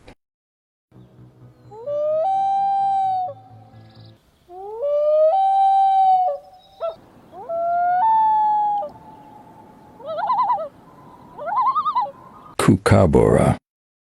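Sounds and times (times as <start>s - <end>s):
loon tremolo call: 1.0s - 12.6s
loon wailing: 1.6s - 3.8s, 4.5s - 12.6s.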